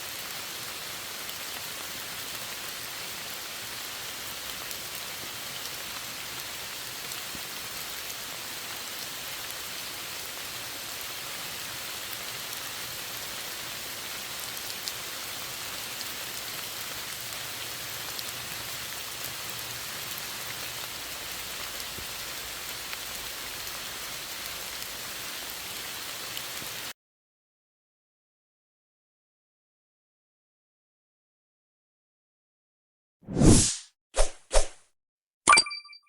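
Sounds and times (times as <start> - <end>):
rain hissing: 0.0 - 26.9
raindrops pattering: 0.1 - 26.9.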